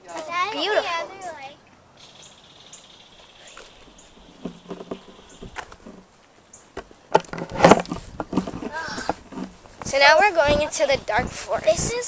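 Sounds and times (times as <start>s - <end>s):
soft knocks and thuds: 4.2s - 6.1s.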